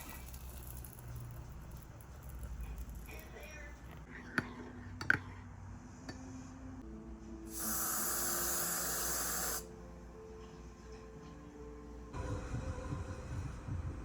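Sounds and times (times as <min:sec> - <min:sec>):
faint background music: 0:00.0 - 0:14.0
spray-like hiss: 0:07.5 - 0:09.7.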